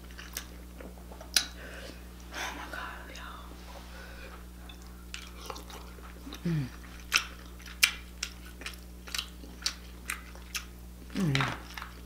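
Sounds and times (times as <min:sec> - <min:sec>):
wet chewing: 0:00.0 - 0:01.6, 0:04.7 - 0:12.0
lip smacks: 0:01.3 - 0:01.6
person humming: 0:06.3 - 0:06.8, 0:11.1 - 0:11.6.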